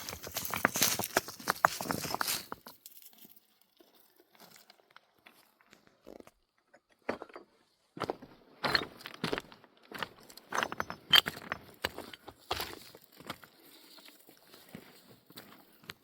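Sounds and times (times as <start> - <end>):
knocks crunches and clinks: 0.0 - 5.3, 10.0 - 16.0.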